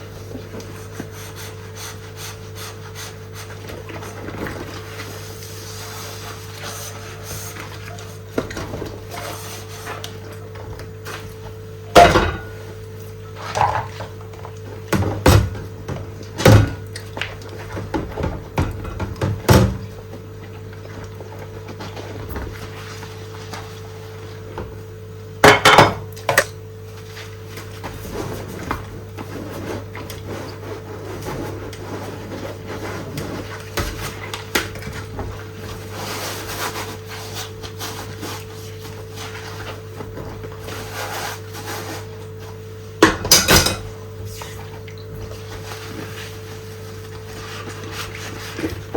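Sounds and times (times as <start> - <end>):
steady hum: 9.1 - 14.1
dishes clinking: 12.0 - 12.6, 25.5 - 26.1, 43.0 - 43.9.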